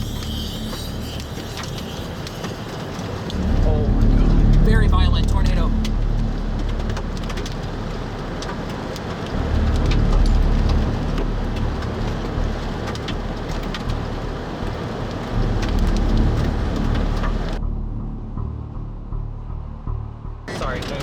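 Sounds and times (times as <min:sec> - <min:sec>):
heavy rain on a vehicle: 0:00.0 - 0:17.6, 0:20.5 - 0:21.0
raindrops ticking on glass: 0:00.0 - 0:17.6
low rumble: 0:00.0 - 0:21.0.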